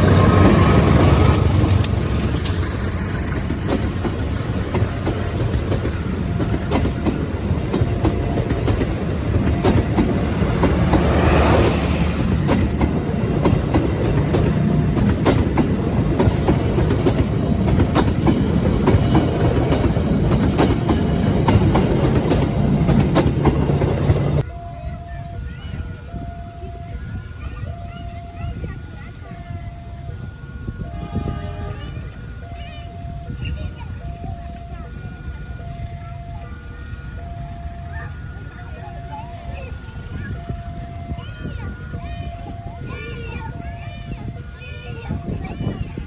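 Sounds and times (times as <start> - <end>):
wheels clicking over rail joints: 0.0 - 24.5
train rumbling past: 0.0 - 46.0.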